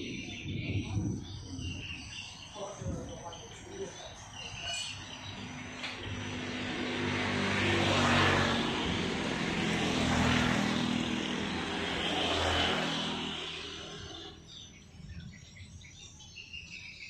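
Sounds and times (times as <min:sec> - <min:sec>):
engine droning: 0:05.1 - 0:14.7.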